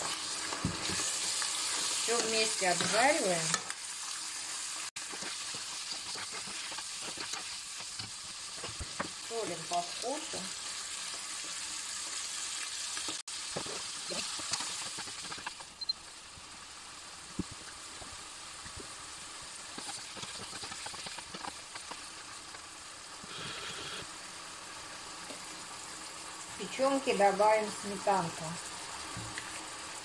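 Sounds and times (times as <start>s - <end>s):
oil popping and crackling: 0.0s - 23.2s
food sizzling in a frying pan: 0.0s - 30.0s.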